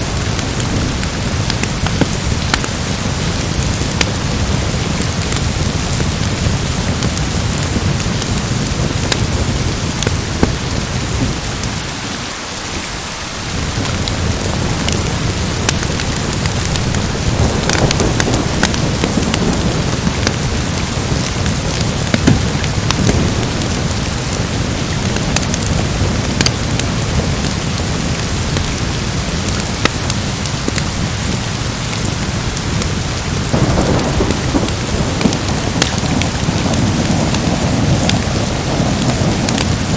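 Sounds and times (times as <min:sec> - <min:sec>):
wood fire crackling: 0:00.0 - 0:11.9, 0:12.8 - 0:39.9
steady rain: 0:00.0 - 0:39.9
low thunder rumble: 0:13.2 - 0:29.4, 0:32.0 - 0:39.9.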